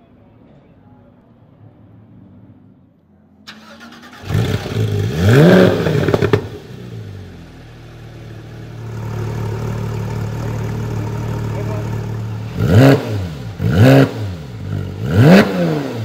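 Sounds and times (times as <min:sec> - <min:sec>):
exhaust cracks: 0:03.5 - 0:07.0
car engine revving and idling: 0:03.7 - 0:16.0.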